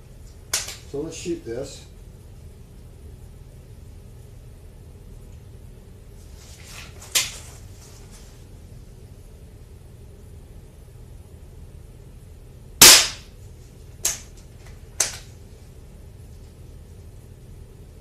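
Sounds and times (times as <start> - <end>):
air pistol shot: 12.8 - 13.3.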